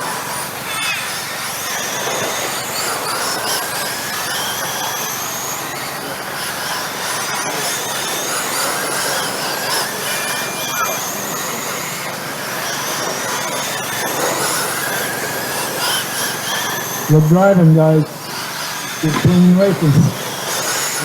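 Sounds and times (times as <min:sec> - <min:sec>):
model truck motors whining: 0:00.0 - 0:21.0
tyre and track noise: 0:19.0 - 0:21.0.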